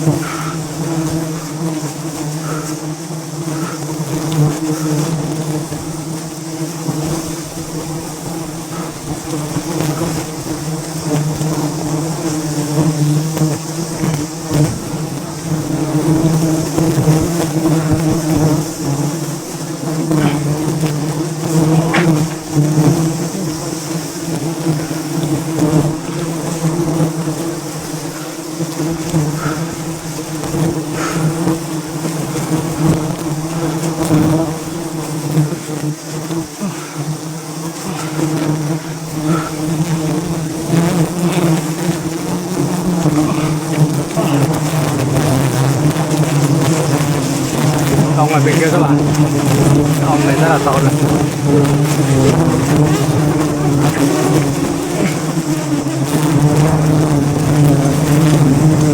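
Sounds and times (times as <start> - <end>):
bees buzzing: 0.0 - 58.9
faint knocks: 21.8 - 22.4.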